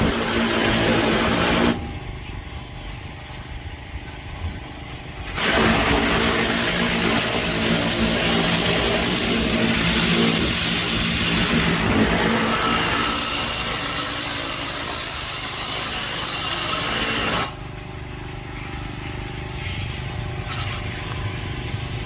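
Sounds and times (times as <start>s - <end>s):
pressure washer engine running: 0.0s - 1.9s, 5.2s - 22.0s
water spray hissing: 5.3s - 17.5s.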